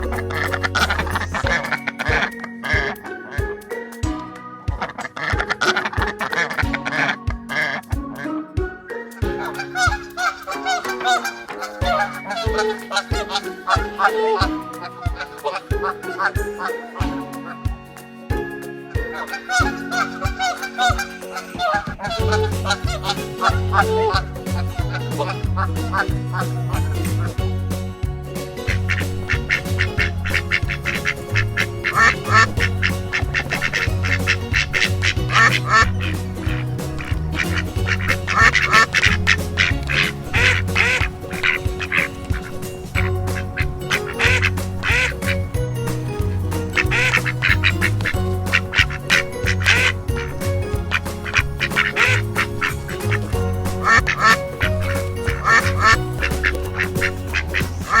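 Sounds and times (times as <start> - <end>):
music with a steady beat: 0.0 - 58.0
duck quacking: 28.7 - 45.5, 46.8 - 58.0.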